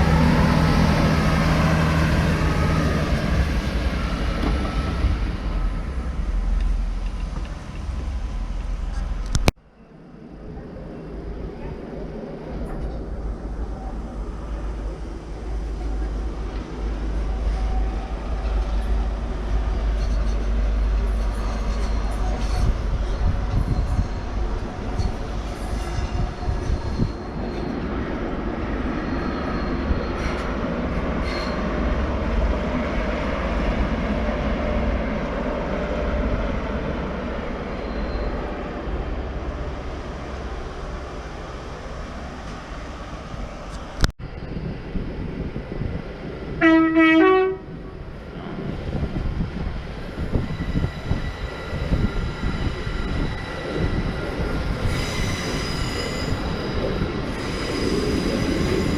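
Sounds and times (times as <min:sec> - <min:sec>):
train rumbling: 0:00.0 - 0:58.9
two-note train horn: 0:46.6 - 0:47.7.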